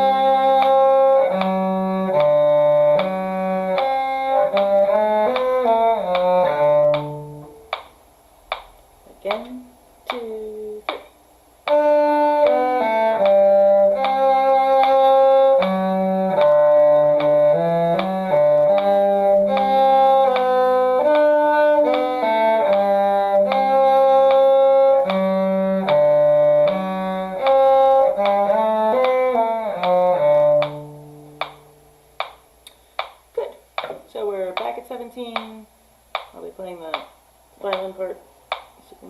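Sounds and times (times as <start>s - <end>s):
low cello line: 0.0s - 39.0s
higher string part: 11.7s - 32.4s.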